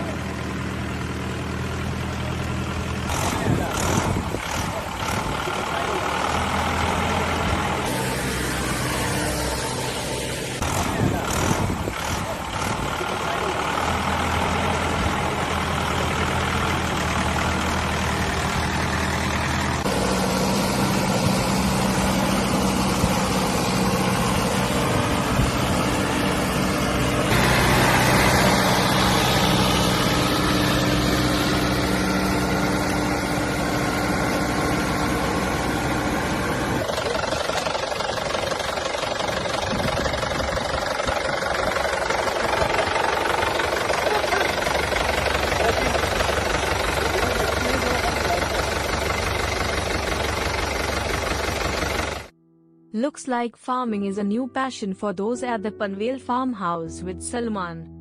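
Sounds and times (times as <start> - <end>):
tractor engine running: 0.0 - 52.4.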